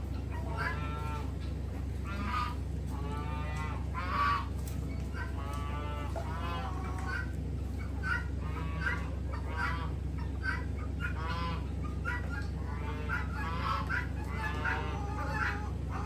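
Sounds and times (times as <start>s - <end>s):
poultry honking squawks: 0.0s - 16.0s
steady low hum: 0.0s - 16.0s.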